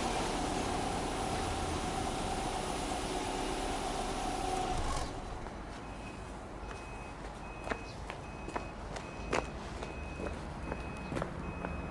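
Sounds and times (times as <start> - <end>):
engine switched off: 0.0 - 5.4
car engine idling: 0.0 - 5.5.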